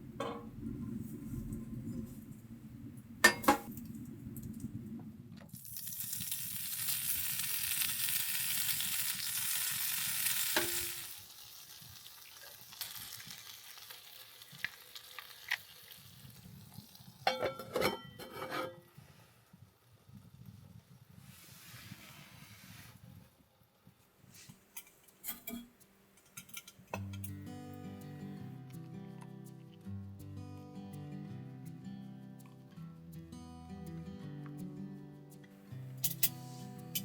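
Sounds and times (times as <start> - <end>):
metal utensils clinking: 3.2 - 3.7, 10.5 - 11.0, 17.3 - 18.8, 24.8 - 27.4, 36.0 - 37.0
food sizzling in a hot pan: 5.5 - 17.3.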